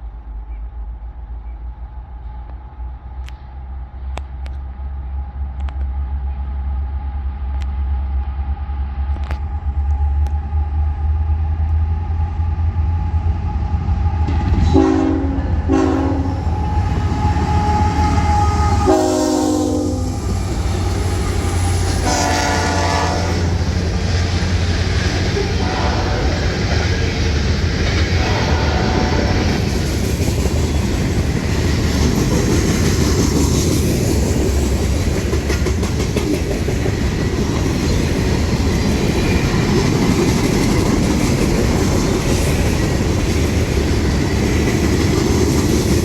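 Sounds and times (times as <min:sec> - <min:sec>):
locomotive engine rumble: 0:00.0 - 0:46.0
train horn blasts: 0:14.6 - 0:23.9, 0:25.1 - 0:27.1, 0:28.1 - 0:29.7.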